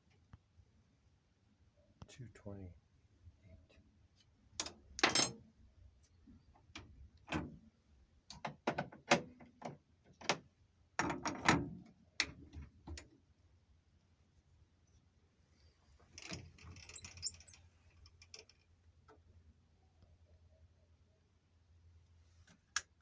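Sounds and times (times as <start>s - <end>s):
metal tools clicking and clanking: 4.6s - 5.4s, 16.2s - 17.6s.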